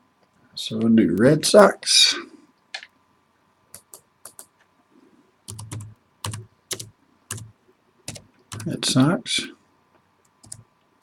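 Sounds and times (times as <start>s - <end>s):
laptop keyboard typing: 3.7s - 4.5s, 5.5s - 7.5s, 8.1s - 8.8s, 10.2s - 10.7s.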